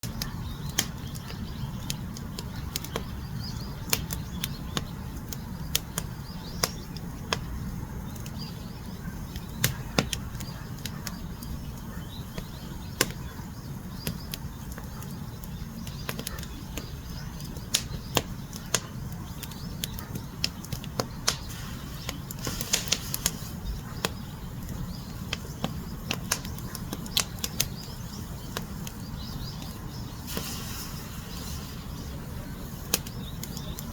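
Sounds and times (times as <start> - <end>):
fire crackling and popping: 0.0 - 33.9
rumble of fire flames: 0.0 - 33.9
hissing burst: 21.3 - 23.6, 30.2 - 33.0.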